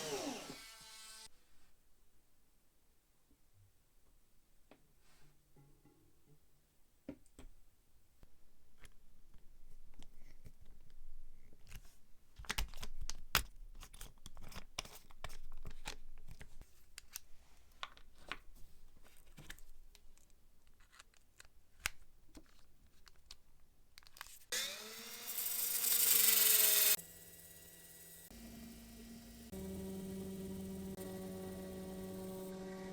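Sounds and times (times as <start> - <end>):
power tool whining: 0.0 - 1.3, 24.5 - 32.9.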